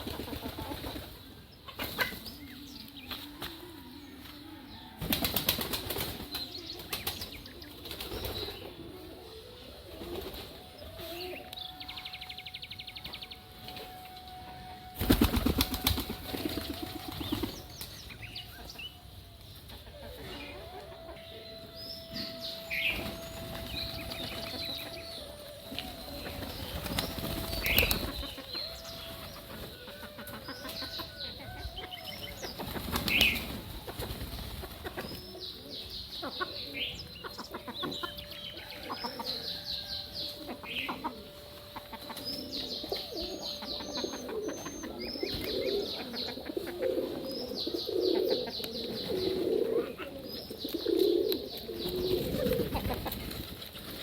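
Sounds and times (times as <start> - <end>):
bird calls and chirps: 0.0 - 54.0
bird wings flapping: 5.0 - 8.6, 14.9 - 18.0, 22.3 - 30.7, 32.5 - 35.2.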